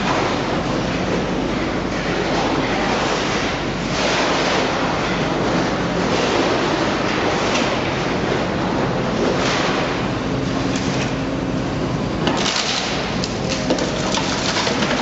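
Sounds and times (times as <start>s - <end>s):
heavy machinery grinding: 12.3s - 15.0s.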